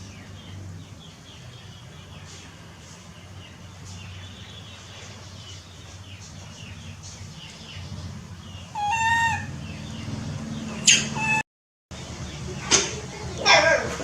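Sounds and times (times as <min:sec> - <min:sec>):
high animal chirps: 0:08.7 - 0:09.6
loud high-pitched animal call: 0:08.7 - 0:09.6, 0:10.9 - 0:11.4.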